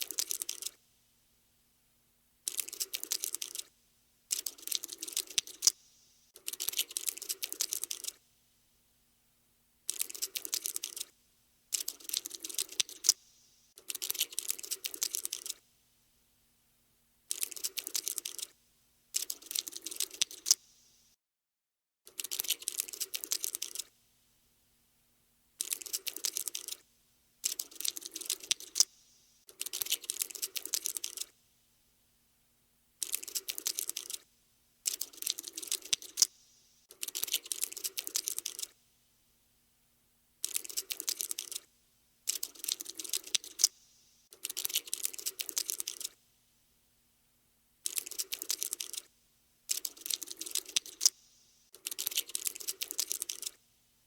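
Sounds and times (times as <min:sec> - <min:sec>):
cockroach scuttling clicks: 0:00.0 - 0:00.8, 0:02.5 - 0:03.7, 0:04.3 - 0:05.8, 0:06.4 - 0:08.2, 0:09.9 - 0:11.1, 0:11.7 - 0:13.2, 0:13.8 - 0:15.6, 0:17.3 - 0:18.5, 0:19.2 - 0:20.7, 0:22.1 - 0:23.9, 0:25.6 - 0:26.8, 0:27.4 - 0:31.3, 0:33.0 - 0:34.2, 0:34.9 - 0:38.8, 0:40.4 - 0:41.7, 0:42.3 - 0:46.2, 0:47.8 - 0:49.1, 0:49.7 - 0:53.6.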